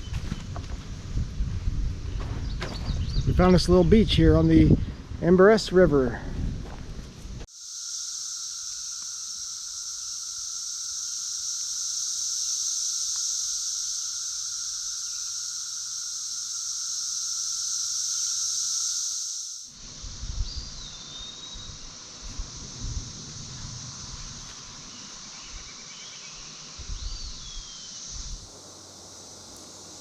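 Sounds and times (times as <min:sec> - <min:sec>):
cicadas droning: 0:07.4 - 0:30.0.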